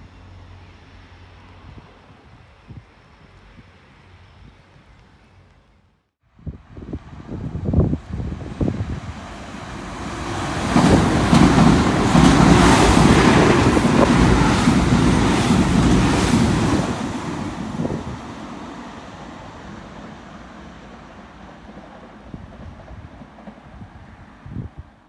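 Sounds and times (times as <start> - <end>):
passenger train passing: 0.0 - 5.2, 6.4 - 25.0.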